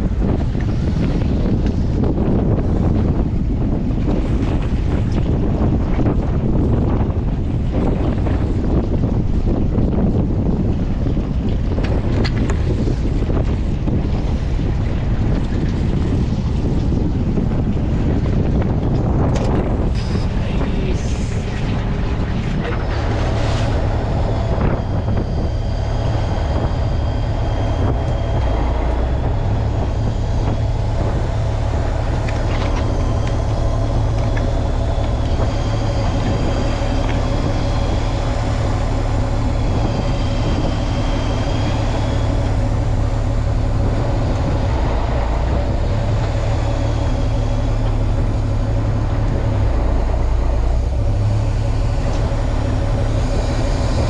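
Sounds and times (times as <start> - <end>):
boat engine low drone: 0.0 - 54.0
thin high whine: 19.0 - 54.0.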